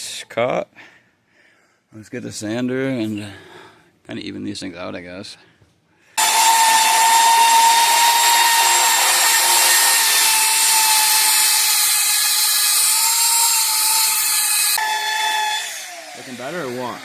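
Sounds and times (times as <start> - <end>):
electric sander on wood: 6.2 - 17.0.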